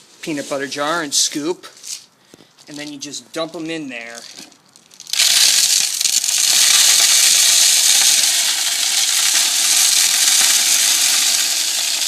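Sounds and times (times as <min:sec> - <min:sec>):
seeds pouring onto plastic: 0:04.1 - 0:12.0.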